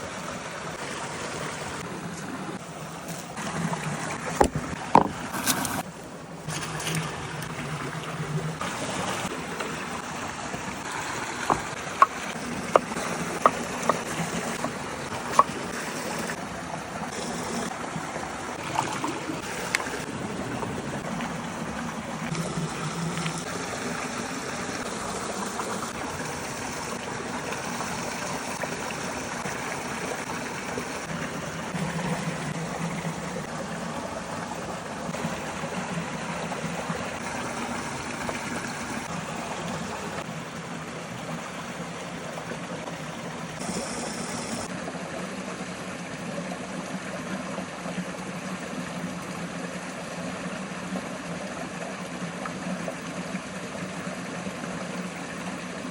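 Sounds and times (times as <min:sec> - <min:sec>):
stream running: 0:00.0 - 0:55.9
sharp knocks: 0:04.4 - 0:05.3.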